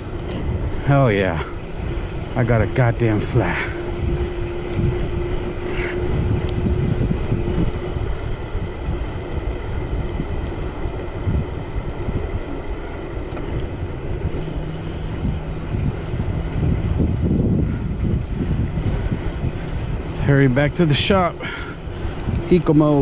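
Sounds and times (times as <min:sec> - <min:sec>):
lower hum: 0:00.0 - 0:23.0
road rumble: 0:00.0 - 0:23.0
steady hum: 0:00.0 - 0:23.0
wind buffeting microphone: 0:00.0 - 0:23.0.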